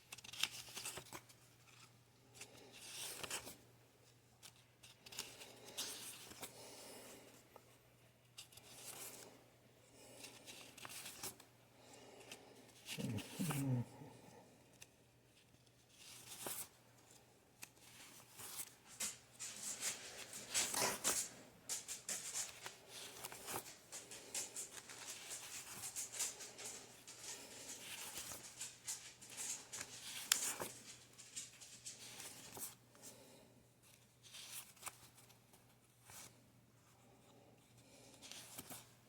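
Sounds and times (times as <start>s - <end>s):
paper bills rustling and flicking: 0.0s - 3.6s, 10.0s - 11.5s, 12.2s - 13.8s, 14.7s - 32.8s.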